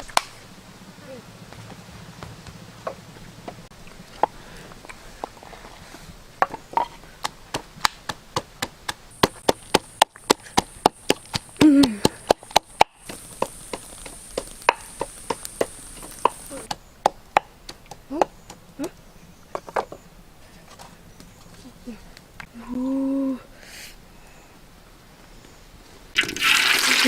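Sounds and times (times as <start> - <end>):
chopping wood: 6.4 - 19.0.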